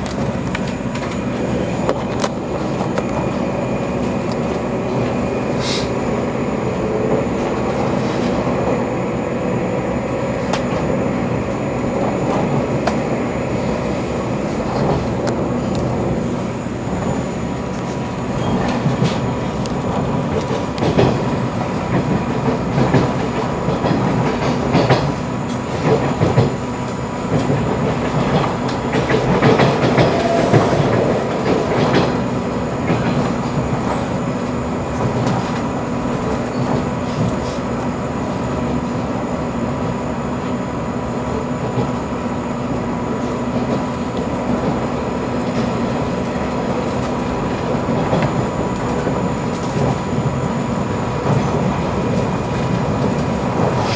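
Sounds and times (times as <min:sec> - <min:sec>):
train rumble inside passenger car: 0:00.0 - 0:53.9
wheels clicking over rail joints: 0:14.5 - 0:39.0, 0:43.2 - 0:53.9.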